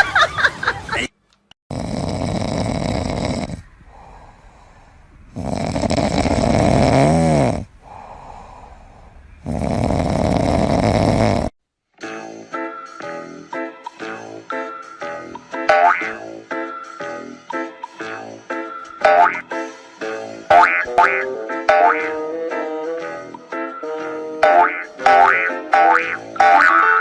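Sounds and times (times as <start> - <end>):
dog snoring loudly: 1.7 - 3.7, 5.3 - 7.7, 9.4 - 11.6
dog breathing quietly: 3.6 - 5.5, 7.7 - 9.7.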